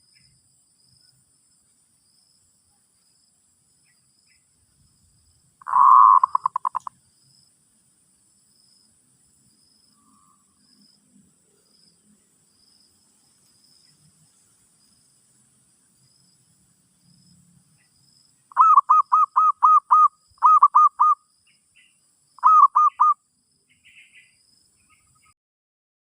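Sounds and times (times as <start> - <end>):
dove cooing: 5.6 - 6.9, 18.5 - 21.2, 22.4 - 23.2.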